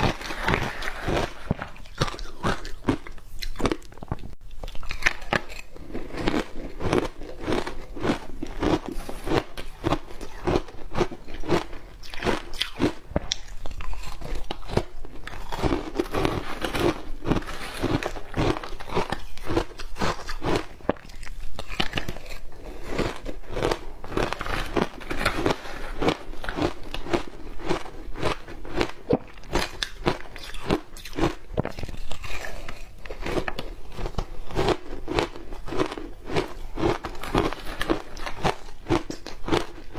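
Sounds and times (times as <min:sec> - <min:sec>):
ice being bitten and chewed: 0:00.0 - 0:39.9.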